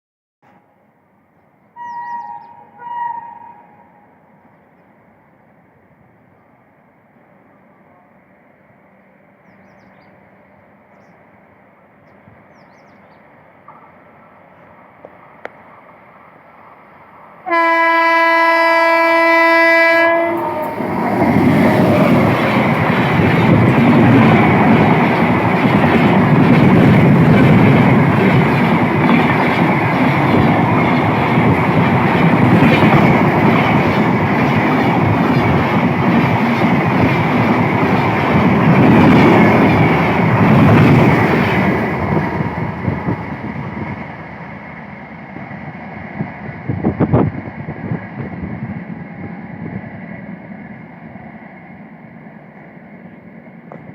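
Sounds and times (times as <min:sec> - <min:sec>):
locomotive horn blast: 0:01.8 - 0:04.0, 0:17.4 - 0:21.0
train rushing past: 0:08.2 - 0:53.9
wheels clattering on rails: 0:20.5 - 0:43.2.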